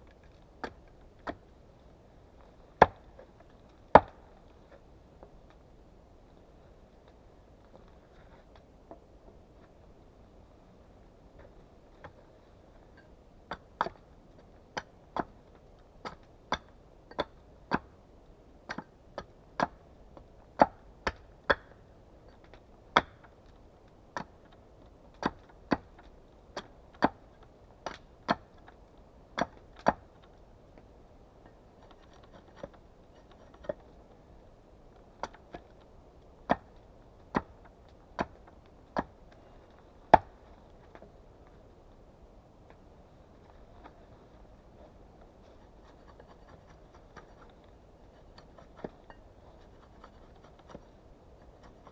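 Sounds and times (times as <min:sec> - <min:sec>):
axe chopping wood: 0:04.0 - 0:04.2, 0:40.1 - 0:40.4.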